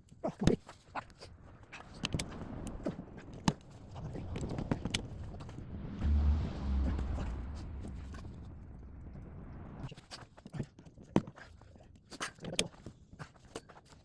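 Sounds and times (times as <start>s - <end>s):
steady low rumble: 1.0s - 11.2s.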